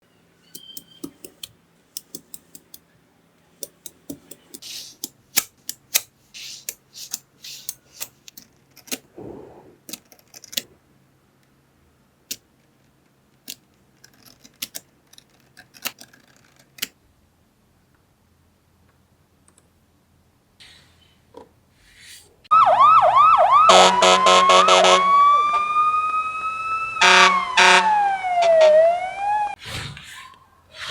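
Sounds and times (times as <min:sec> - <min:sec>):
magnetic balls clicking together: 0:00.4 - 0:02.8, 0:03.6 - 0:09.1
balls rattling scrapes: 0:03.7 - 0:10.8.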